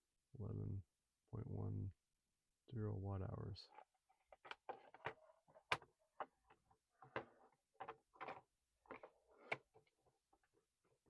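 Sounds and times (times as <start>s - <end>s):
plastic parts clicking and tapping: 3.7s - 10.5s.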